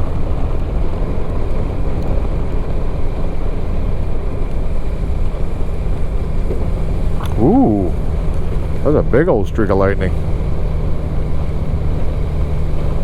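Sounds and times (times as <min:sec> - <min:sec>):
motorcycle engine running: 0:03.4 - 0:13.0.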